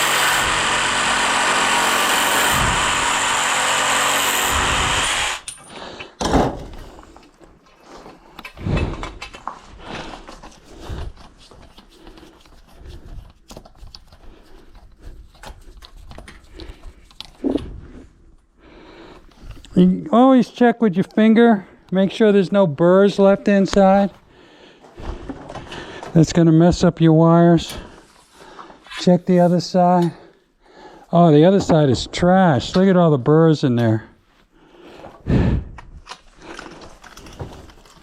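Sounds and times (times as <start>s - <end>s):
handheld power tool running: 0.0s - 5.6s.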